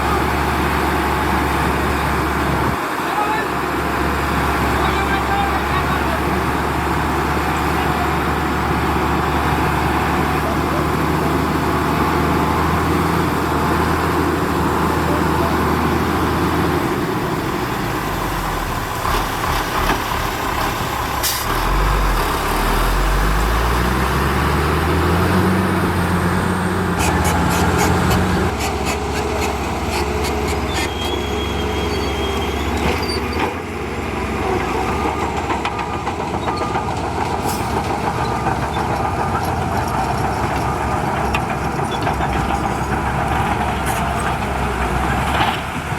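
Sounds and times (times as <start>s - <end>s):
heavy diesel engines running: 0.0s - 45.9s
engine revving: 6.1s - 31.1s.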